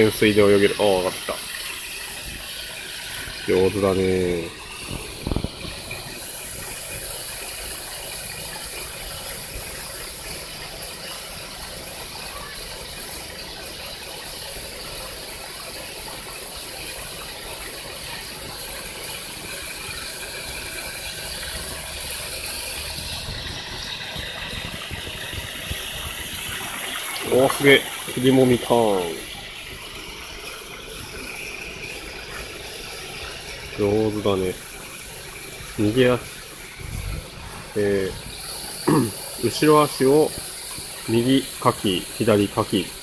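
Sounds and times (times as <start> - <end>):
running water rushing: 0.0 - 43.0.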